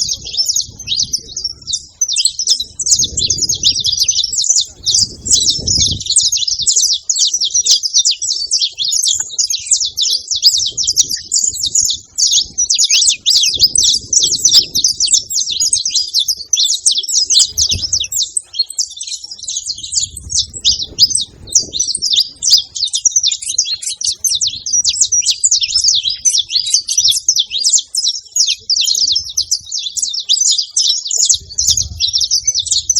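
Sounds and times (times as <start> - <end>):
soft low rumbles: 0.0 - 6.3
finches chirping: 0.0 - 32.9.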